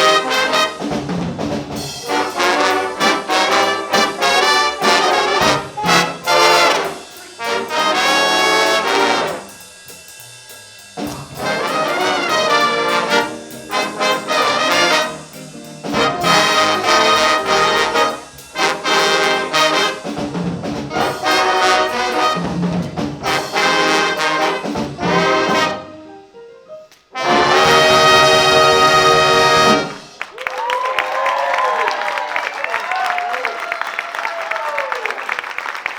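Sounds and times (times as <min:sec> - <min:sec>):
big band horn section: 0:00.0 - 0:26.1, 0:27.1 - 0:35.9
drum kit playing swing: 0:00.0 - 0:30.5.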